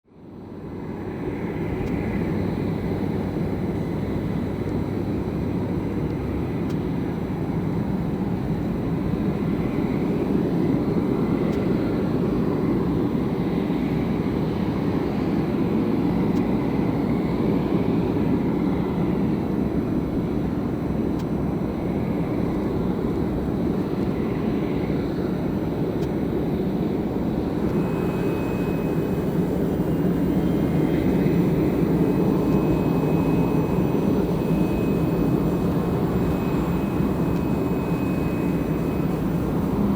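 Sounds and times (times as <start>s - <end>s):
jet engines rumbling: 24.0s - 39.9s.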